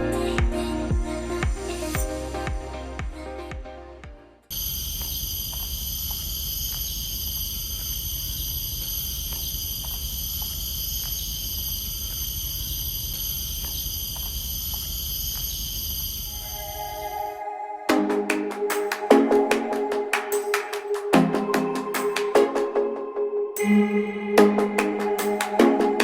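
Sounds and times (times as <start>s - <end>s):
forest insects chorus: 4.5s - 16.4s.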